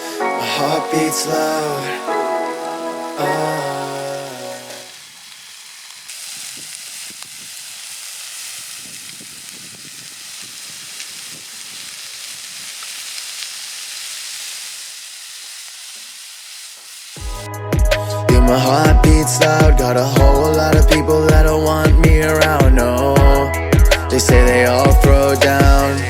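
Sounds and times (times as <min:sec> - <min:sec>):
meat sizzling: 0:00.0 - 0:17.5
small pops and crackles: 0:04.7 - 0:17.5.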